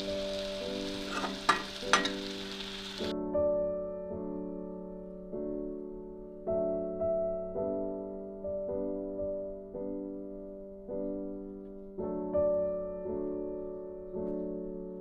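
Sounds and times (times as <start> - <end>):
food sizzling in a frying pan: 0.0 - 3.1
soft piano music: 0.0 - 15.0
utensil clinking: 1.1 - 2.3.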